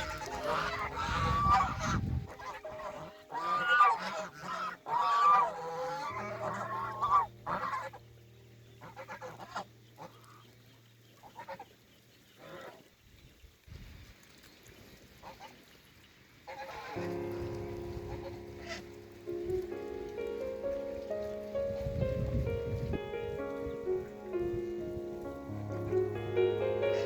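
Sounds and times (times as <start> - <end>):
geese honking: 0.0 - 10.6, 11.2 - 11.8, 16.5 - 22.0, 22.9 - 27.0.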